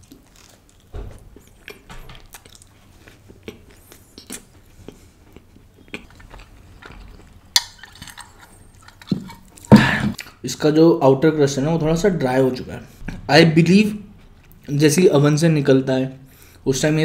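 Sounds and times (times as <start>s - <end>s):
chewing crunchy pizza crust: 0.0s - 10.3s.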